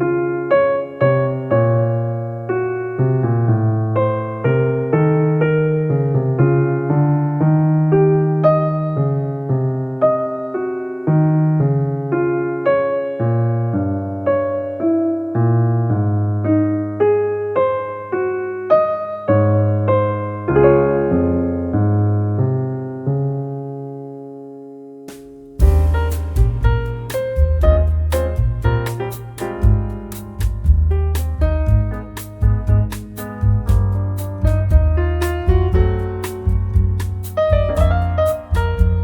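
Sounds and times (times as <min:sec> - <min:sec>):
soft piano melody: 0:00.0 - 0:39.0
low bass line: 0:25.6 - 0:39.0.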